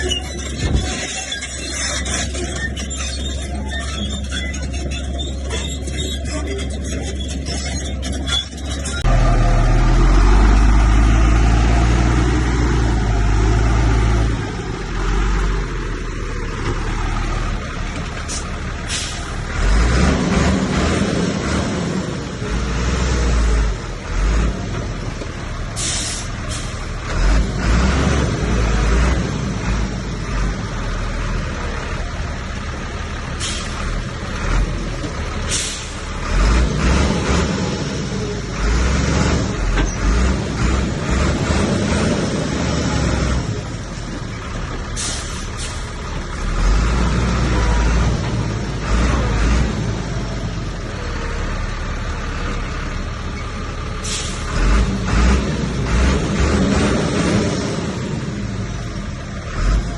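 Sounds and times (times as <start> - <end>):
heavy machinery engines running: 0.0 - 59.9
short sharp hisses: 25.8 - 26.8, 54.0 - 54.5.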